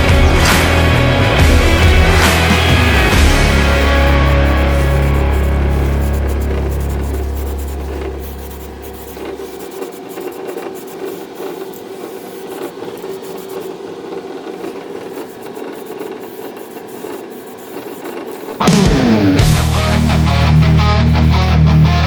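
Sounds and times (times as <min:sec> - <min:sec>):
music: 0:00.0 - 0:08.8, 0:18.6 - 0:22.0
rasping and rubbing: 0:00.0 - 0:18.7.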